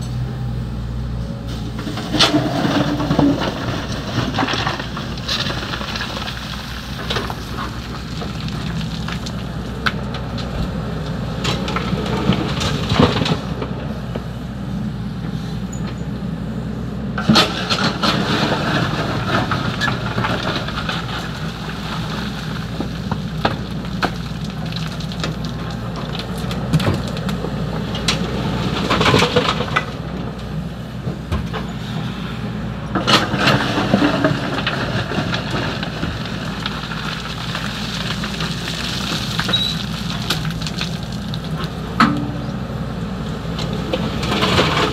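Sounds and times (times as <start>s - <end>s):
excavator diesel engine running: 0.0s - 44.9s
bucket rattling gravel: 1.8s - 10.4s, 17.2s - 27.3s, 28.0s - 30.2s, 32.9s - 42.6s, 43.6s - 44.9s.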